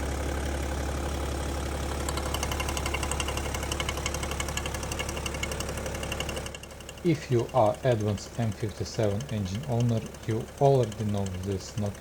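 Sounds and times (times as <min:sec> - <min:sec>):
diesel engine idling: 0:00.0 - 0:12.0
rapid even knocking: 0:06.9 - 0:12.0.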